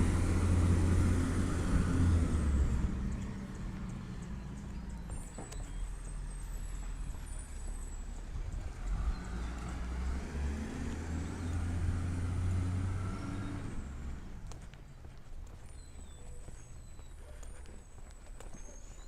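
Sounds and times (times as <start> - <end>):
garbage truck engine running: 0.0 - 5.0.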